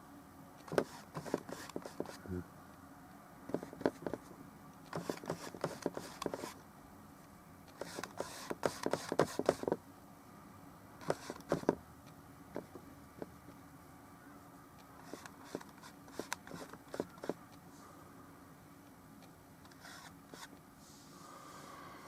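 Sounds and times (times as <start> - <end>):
paintbrush scratchy strokes: 0.8 - 2.2, 5.0 - 6.6, 7.8 - 9.6.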